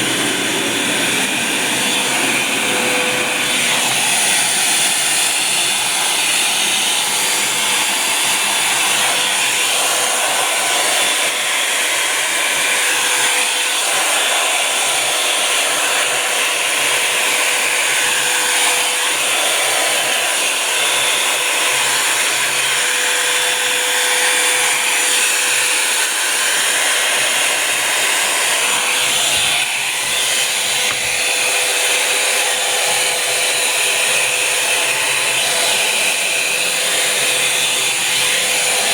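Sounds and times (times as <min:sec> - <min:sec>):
motor whine: 0:00.0 - 0:09.6, 0:27.2 - 0:33.0
hot-air brush dryer blowing: 0:00.0 - 0:38.9.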